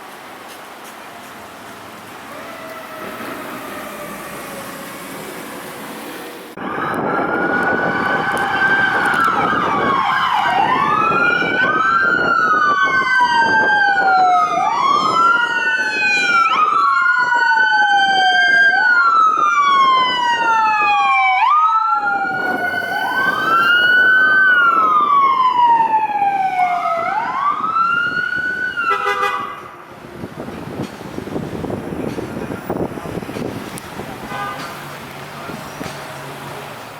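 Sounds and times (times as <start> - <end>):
emergency siren wailing: 2.2 - 29.8
second siren: 2.3 - 5.8, 6.6 - 29.6
vehicle drone: 22.3 - 25.4.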